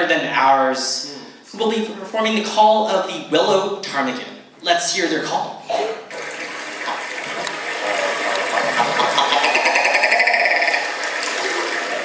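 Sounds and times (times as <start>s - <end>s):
people imitating bird call: 8.9s - 10.9s.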